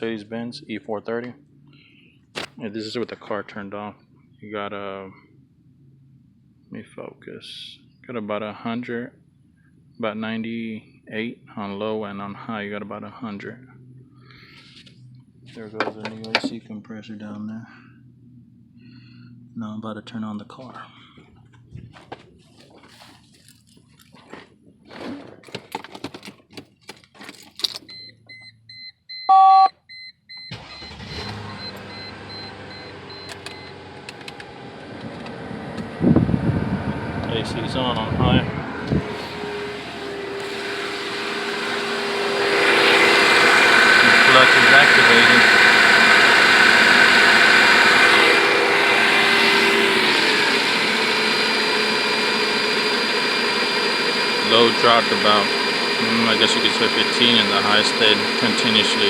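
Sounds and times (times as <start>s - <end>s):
quick electronic beeps: 27.9s - 30.9s
short dashboard tone: 27.9s - 33.8s
car engine starting and idling: 30.3s - 59.0s.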